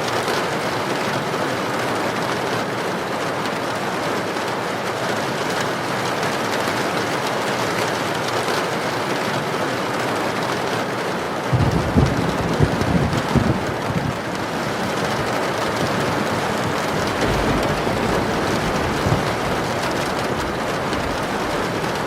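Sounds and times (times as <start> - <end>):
heavy rain pouring: 0.0 - 22.0
raindrops ticking: 11.6 - 22.0.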